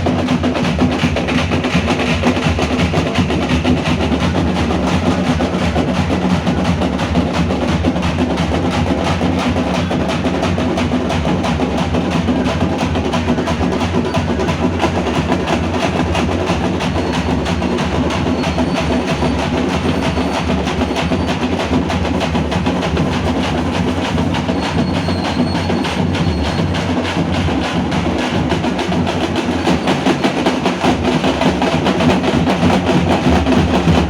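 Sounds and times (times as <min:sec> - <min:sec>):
drums played loud and fast: 0:00.0 - 0:34.0.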